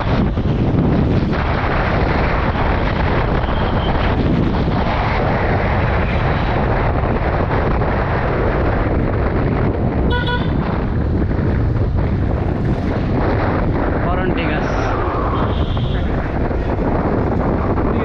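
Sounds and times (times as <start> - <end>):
motorcycle riding: 0.0 - 18.0
wind buffeting microphone: 0.0 - 18.0
vehicle horn honk: 10.1 - 10.6.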